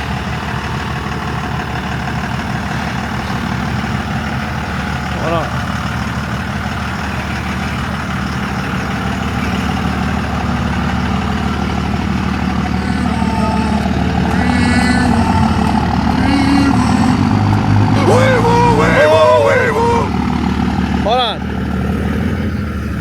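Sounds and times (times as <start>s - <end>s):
truck engine idling: 0.0s - 23.0s
faint voices: 2.6s - 21.5s.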